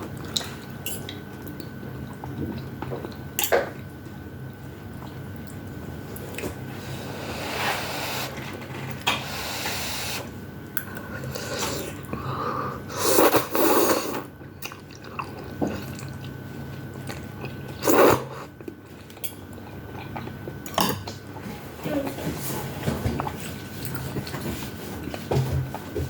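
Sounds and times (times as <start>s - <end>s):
chewing and crunching food: 14.3s - 26.0s.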